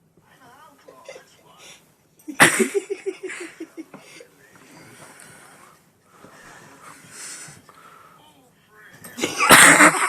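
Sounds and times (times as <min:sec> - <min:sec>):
person breathing: 0:03.4 - 0:08.4.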